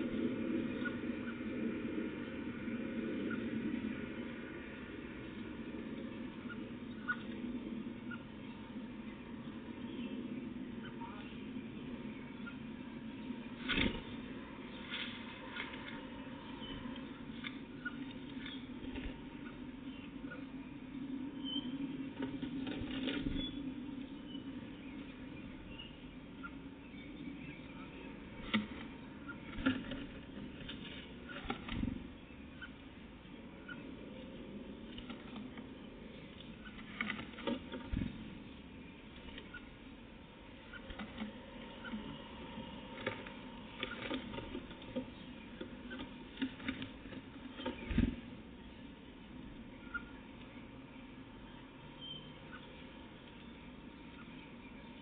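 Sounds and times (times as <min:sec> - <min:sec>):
steady low hum: 0:00.0 - 0:55.0
birds pecking on feeder: 0:21.6 - 0:55.0
faint high chirps: 0:51.5 - 0:52.8.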